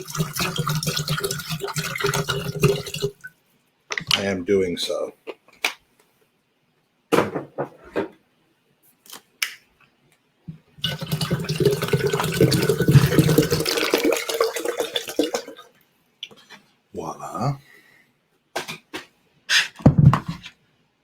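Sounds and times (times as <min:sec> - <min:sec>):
water pouring into kettle: 0:00.0 - 0:03.3, 0:10.8 - 0:15.7.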